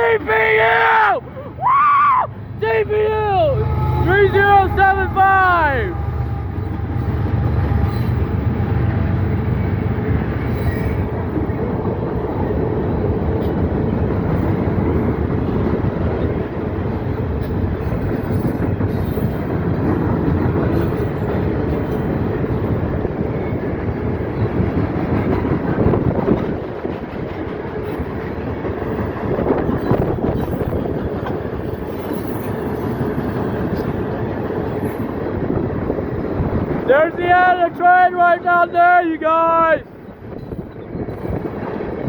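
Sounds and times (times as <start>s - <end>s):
rail clicks: 0.0s - 42.0s
train wheels rumbling on rails: 0.0s - 42.0s.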